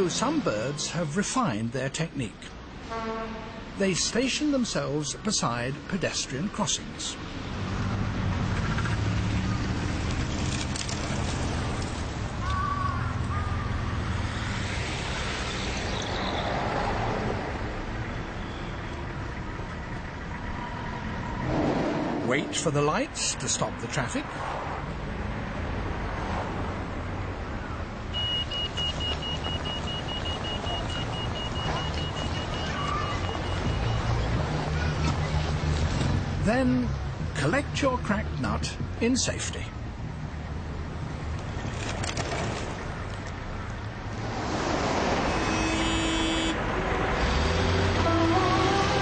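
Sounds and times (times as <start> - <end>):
road traffic rumbling: 0.0 - 49.0
vehicle engines humming: 0.0 - 49.0
pedestrian crossing signal beeping: 28.1 - 34.3.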